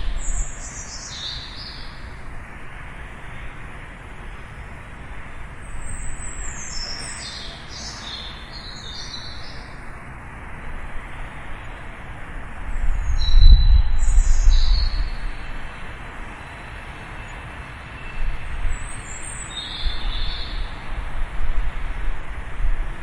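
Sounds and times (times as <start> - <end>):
small birds chirping: 0.0 - 2.2, 5.6 - 9.9, 12.7 - 15.3, 18.0 - 20.9
low rumble: 12.8 - 15.4.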